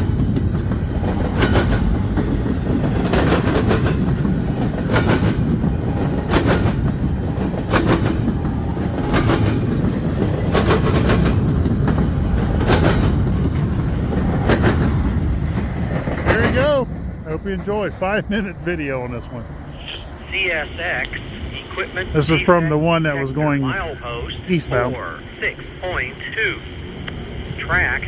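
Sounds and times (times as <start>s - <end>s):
wheels clacking over rail joints: 0.0s - 18.5s
freight train rumbling past: 0.0s - 28.0s.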